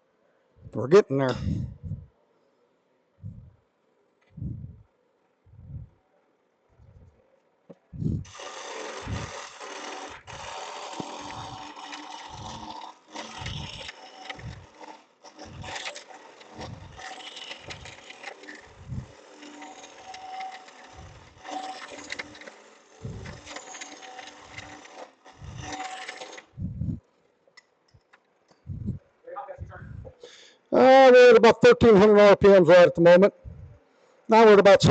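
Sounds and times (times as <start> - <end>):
low thumps: 1.4 - 2.1, 3.2 - 3.6, 4.3 - 4.8, 5.5 - 6.0, 7.9 - 8.3, 26.6 - 27.0, 28.6 - 29.0, 29.6 - 30.2, 33.4 - 33.8
lathe tool shearing wood: 8.0 - 27.0.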